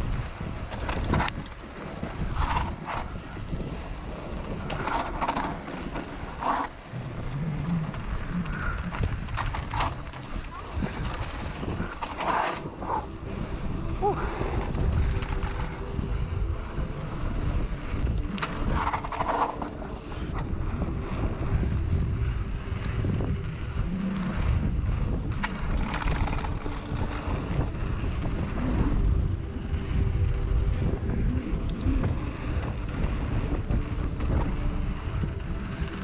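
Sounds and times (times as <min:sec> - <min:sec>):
bike tyre and frame noise: 0:00.0 - 0:36.0
wind rushing over microphone: 0:00.0 - 0:36.0.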